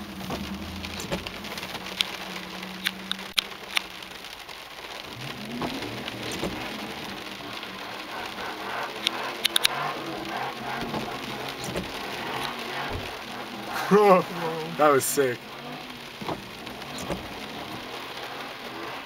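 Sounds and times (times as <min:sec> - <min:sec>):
car engine running: 0:00.0 - 0:19.0
rain pattering on a car: 0:00.0 - 0:19.0
engine revving: 0:05.0 - 0:19.0.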